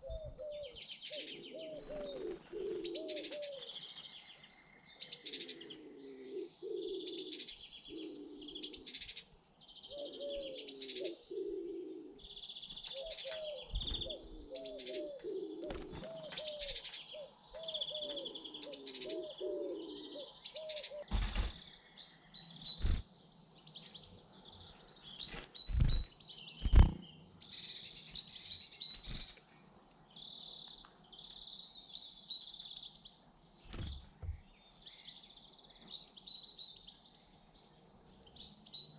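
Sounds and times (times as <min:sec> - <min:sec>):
pigeon cooing: 0:00.0 - 0:03.8, 0:05.2 - 0:09.0, 0:09.9 - 0:21.1, 0:25.7 - 0:27.0
small birds chirping: 0:00.0 - 0:38.9.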